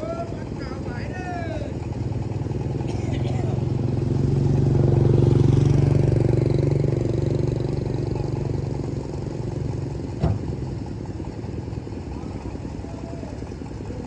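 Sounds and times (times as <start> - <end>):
car engine running: 0.0 - 14.0
sharp knock: 10.2 - 10.5.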